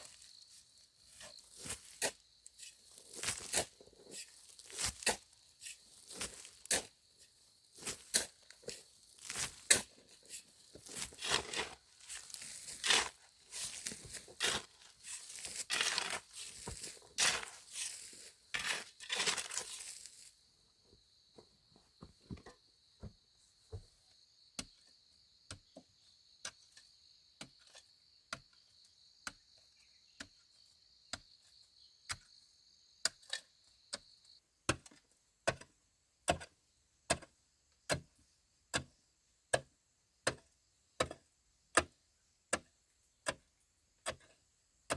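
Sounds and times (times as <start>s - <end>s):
plant material tearing and crunching: 19.0s - 20.2s.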